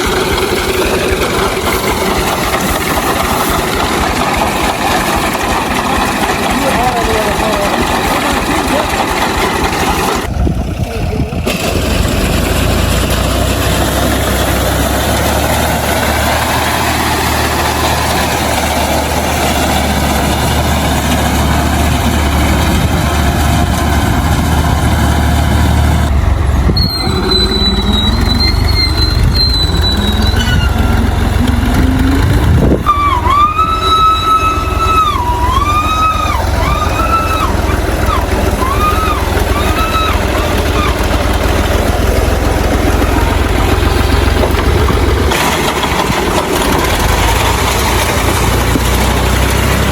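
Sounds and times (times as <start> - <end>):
tractor engine running: 0.0 - 49.9
wavering high-pitched tone: 31.5 - 41.0.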